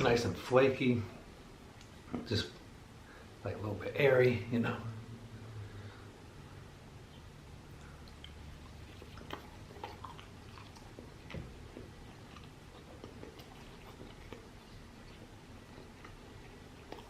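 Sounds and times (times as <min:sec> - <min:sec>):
person chewing food: 0:07.6 - 0:17.0.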